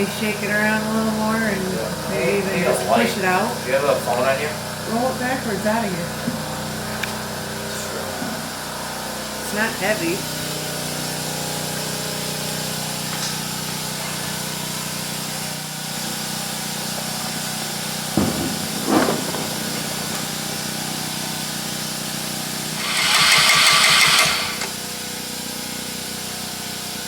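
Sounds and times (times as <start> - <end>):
loud rushing hiss: 16.2 - 25.9.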